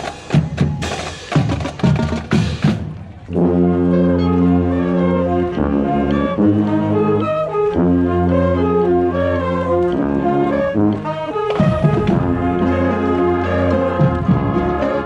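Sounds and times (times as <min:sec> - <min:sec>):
marching band drum strikes: 0:00.0 - 0:03.1, 0:11.0 - 0:15.0
brass section chords: 0:03.2 - 0:15.0.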